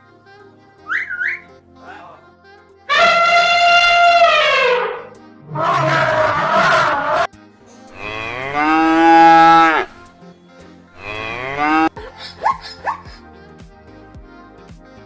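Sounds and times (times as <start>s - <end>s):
cattle mooing: 2.9s - 7.3s, 8.0s - 10.0s, 11.0s - 11.9s
sharp rising squeaks: 2.9s - 7.3s.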